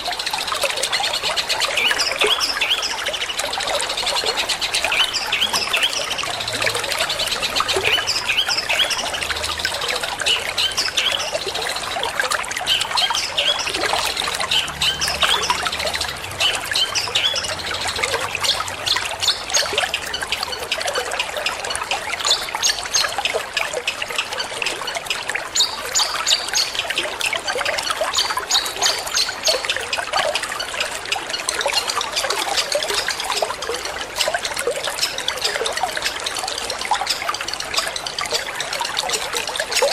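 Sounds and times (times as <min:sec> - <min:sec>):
water trickling: 0:00.0 - 0:39.9
bird chattering song: 0:01.2 - 0:12.0, 0:12.6 - 0:20.7.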